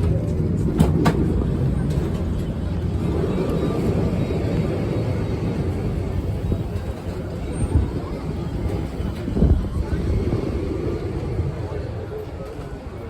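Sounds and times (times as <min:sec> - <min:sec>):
tram rumbling along track: 0:00.0 - 0:13.0.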